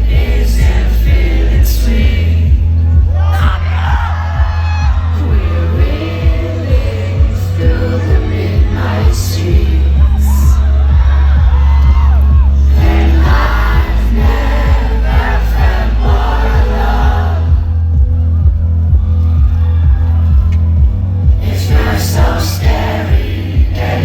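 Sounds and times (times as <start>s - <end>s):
crowd noise: 0.0s - 24.0s
live pop song over loudspeakers: 0.0s - 24.0s
woman singing: 4.8s - 11.1s.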